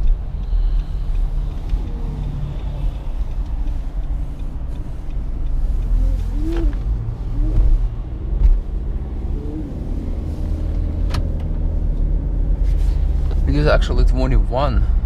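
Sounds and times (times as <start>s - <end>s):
engine and road noise rumble: 0.0s - 15.0s.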